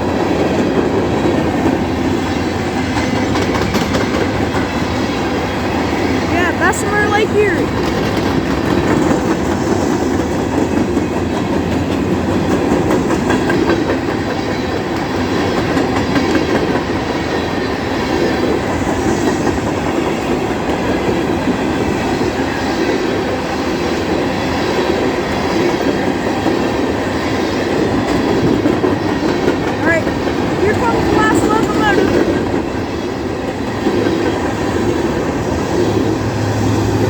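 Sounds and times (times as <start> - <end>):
train cars rolling on rails: 0.0 - 37.0.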